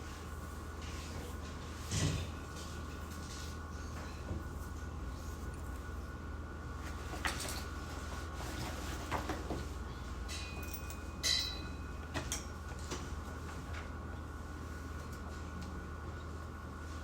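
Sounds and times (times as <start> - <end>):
low room hum: 0.0 - 17.0
ringing clink: 10.3 - 11.9.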